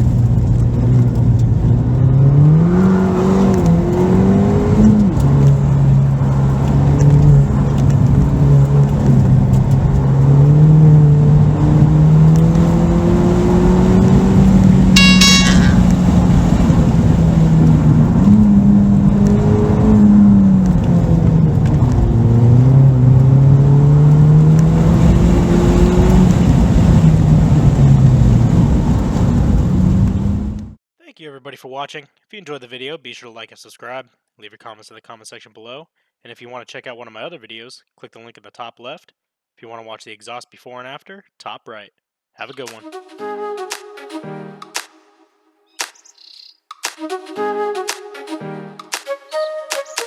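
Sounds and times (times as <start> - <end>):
car engine revving: 0.1 - 15.0, 15.9 - 30.6
short high beep: 15.0 - 16.0.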